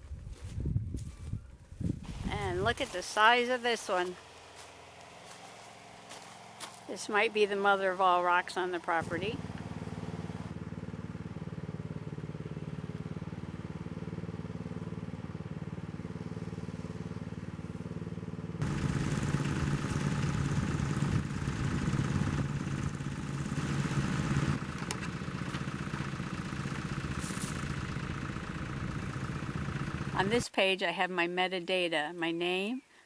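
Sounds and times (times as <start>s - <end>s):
engine-like drone: 2.1s - 30.5s.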